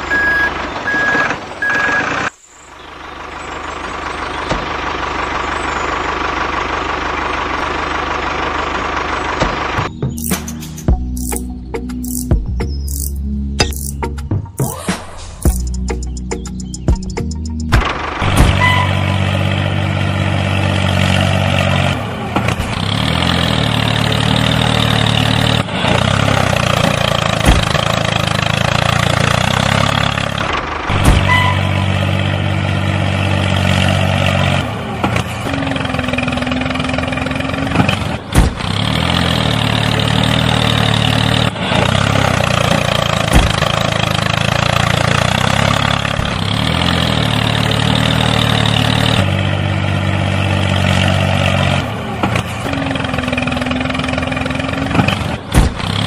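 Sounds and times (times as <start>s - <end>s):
engine idling: 2.8s - 14.2s.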